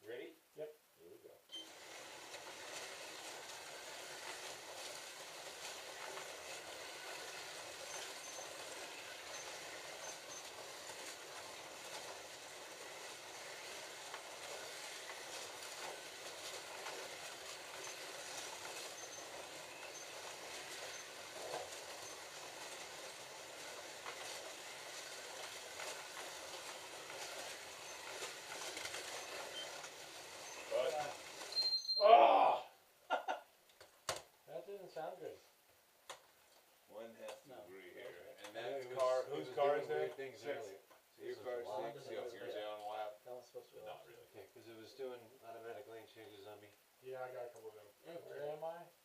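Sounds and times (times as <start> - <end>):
slot cars whining and rattling: 1.7 - 31.6.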